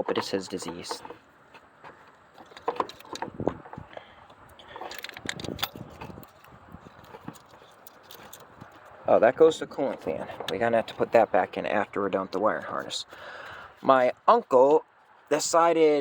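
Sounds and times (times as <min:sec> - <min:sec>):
hands handling wires and plugs: 0:00.0 - 0:09.0.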